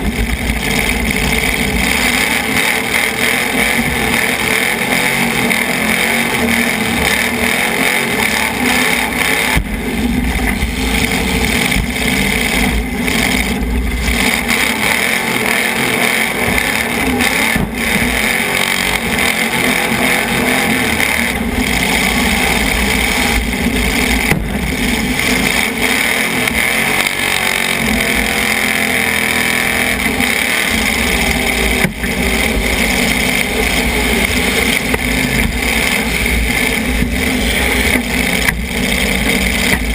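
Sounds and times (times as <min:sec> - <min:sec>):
car engine running loud: 0:00.0 - 0:39.9.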